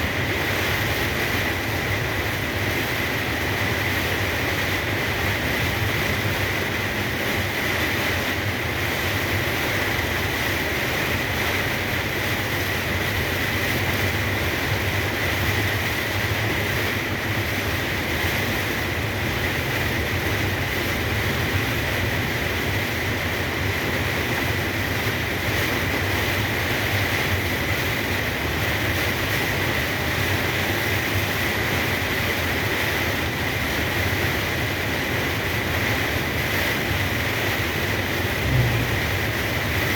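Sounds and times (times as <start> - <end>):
rain hissing: 0.0 - 39.9
tyre noise on wet road: 0.0 - 39.9
truck engine drone: 34.8 - 39.9.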